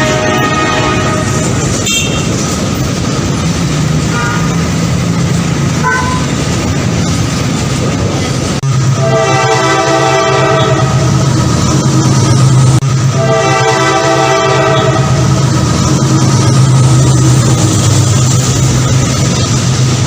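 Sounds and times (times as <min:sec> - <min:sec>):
train horn: 0:00.0 - 0:02.3, 0:04.1 - 0:04.6, 0:05.8 - 0:06.3, 0:09.0 - 0:11.0, 0:13.1 - 0:15.2
train rumbling on rails: 0:00.0 - 0:20.0.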